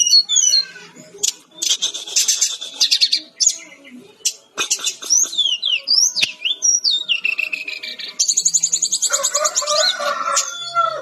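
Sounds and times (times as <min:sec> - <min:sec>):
bird singing whistled notes and trills: 0:00.0 - 0:10.9.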